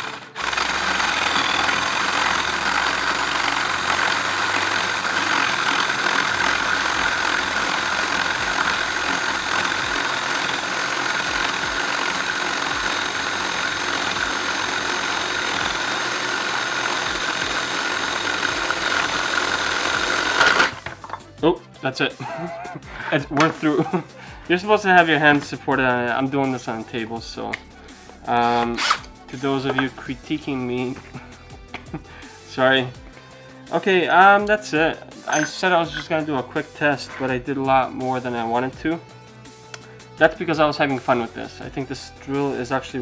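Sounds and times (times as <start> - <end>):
cordless drill boring wood: 0.0 - 21.2, 28.3 - 30.1.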